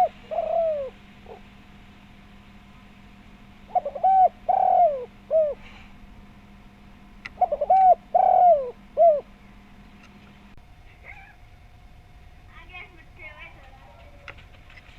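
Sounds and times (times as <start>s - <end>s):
dove cooing: 0.0s - 1.7s, 3.5s - 5.9s, 7.2s - 9.8s, 10.9s - 11.4s
faint steady hum: 0.0s - 14.9s.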